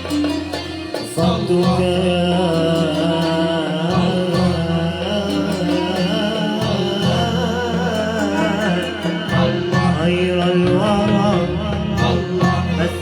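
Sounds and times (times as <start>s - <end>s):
wavering sung line: 0.0s - 10.5s
instrumental accompaniment: 0.0s - 13.0s.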